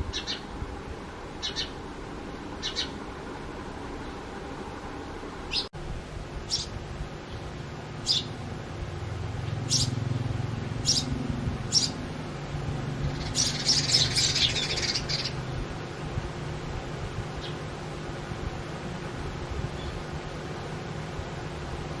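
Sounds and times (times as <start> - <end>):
sparrows chirping: 0.0 - 0.5, 1.3 - 1.9, 2.5 - 3.2, 5.5 - 5.7, 6.4 - 16.0, 17.3 - 17.7, 19.7 - 20.2
steady low hum: 0.0 - 22.0.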